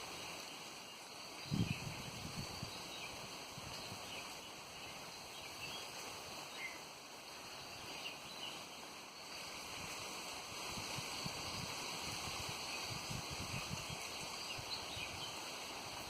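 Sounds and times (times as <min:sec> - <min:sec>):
wind buffeting microphone: 0:01.4 - 0:04.3, 0:09.6 - 0:16.0
wind rushing: 0:09.3 - 0:15.4.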